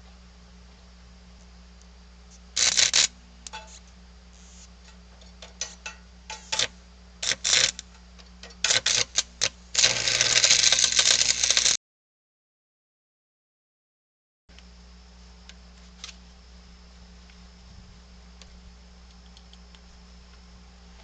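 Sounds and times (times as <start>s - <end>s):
low electrical hum: 0.0s - 11.8s, 14.5s - 21.0s
arc welder crackling: 1.8s - 11.8s.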